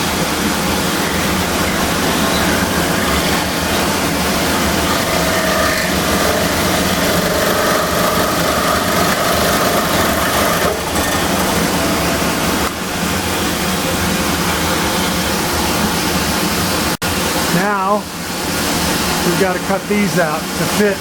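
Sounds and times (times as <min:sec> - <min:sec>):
power tool cutting wood: 0:02.3 - 0:12.7.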